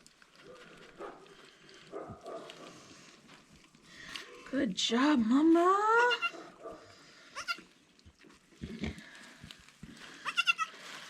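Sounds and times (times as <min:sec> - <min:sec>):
goat bleating: 0:06.0 - 0:06.4, 0:07.4 - 0:07.7, 0:10.2 - 0:10.8.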